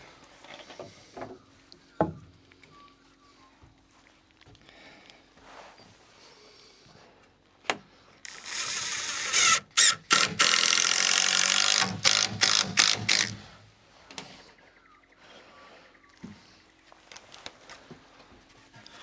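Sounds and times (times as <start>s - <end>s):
sharp click: 8.3s - 13.4s
power tool ratcheting rattle: 8.3s - 13.6s.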